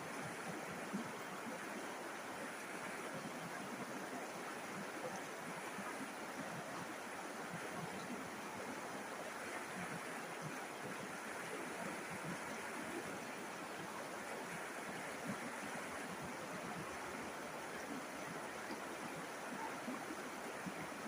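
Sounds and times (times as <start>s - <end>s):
river water rushing over stones: 0.0s - 21.0s.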